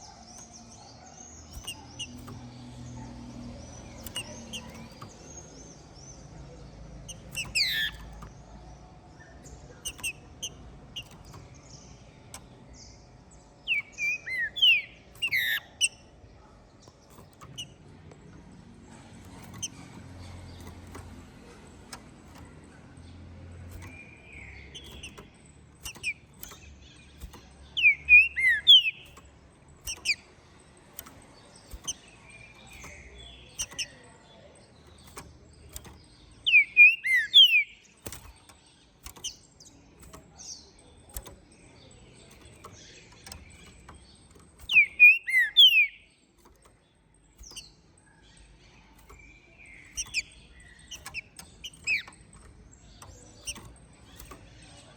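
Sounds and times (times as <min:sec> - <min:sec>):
sharp clicks: 0:00.0 - 0:54.9
bird singing whistled notes: 0:13.6 - 0:16.1, 0:27.2 - 0:29.2, 0:36.4 - 0:38.2, 0:44.6 - 0:46.1.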